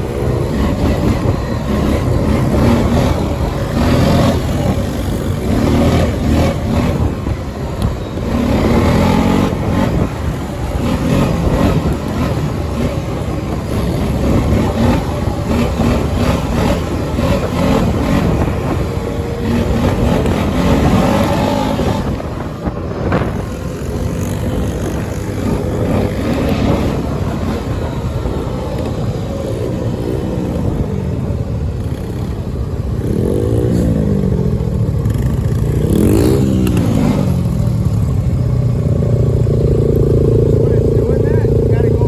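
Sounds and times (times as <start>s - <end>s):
dirt bike engine revving: 0.0s - 42.0s.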